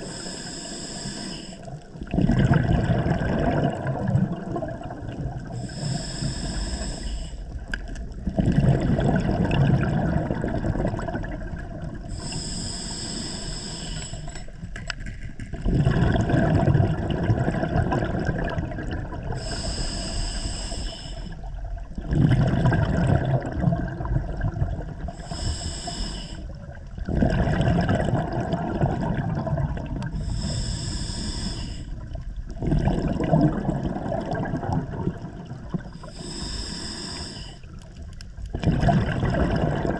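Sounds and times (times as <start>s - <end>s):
regulator hiss on inhalation: 0.0s - 1.7s, 5.6s - 7.5s, 12.1s - 14.5s, 19.4s - 21.4s, 25.2s - 26.6s, 30.2s - 32.0s, 36.0s - 37.7s
exhaled bubbles burbling: 1.8s - 5.9s, 7.5s - 12.2s, 15.2s - 19.6s, 21.4s - 25.4s, 26.5s - 30.6s, 31.9s - 36.4s, 37.6s - 39.9s.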